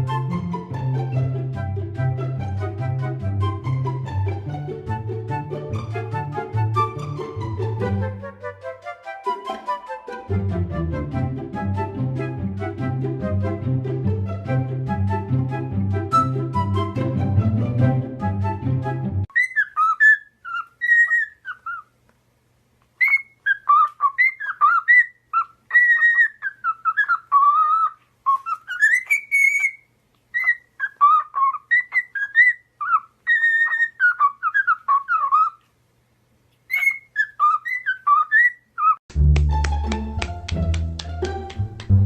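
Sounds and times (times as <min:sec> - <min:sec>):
background music: 0:00.0 - 0:19.3, 0:39.1 - 0:42.0
parrot whistling: 0:19.3 - 0:21.9, 0:23.0 - 0:29.8, 0:30.4 - 0:35.6, 0:36.7 - 0:39.0.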